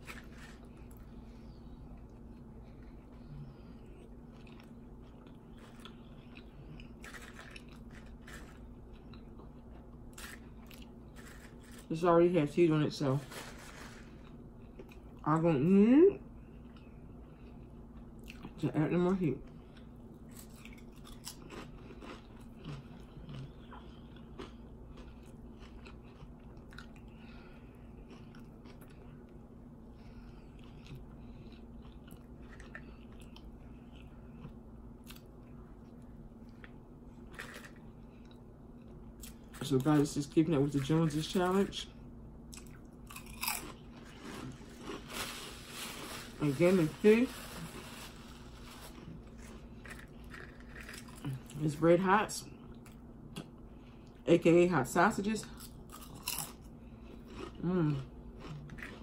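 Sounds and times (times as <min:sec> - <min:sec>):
potato chips crunching: 0:00.0 - 0:01.0, 0:04.3 - 0:15.2, 0:20.3 - 0:27.1, 0:36.6 - 0:37.9, 0:42.5 - 0:51.8, 0:55.4 - 0:59.0
person chewing: 0:01.9 - 0:11.9, 0:13.5 - 0:15.2, 0:16.5 - 0:18.6, 0:19.6 - 0:39.6, 0:42.5 - 0:45.4, 0:47.8 - 0:51.6, 0:55.5 - 0:59.0
potato chips crackling: 0:06.9 - 0:08.6, 0:42.6 - 0:51.7.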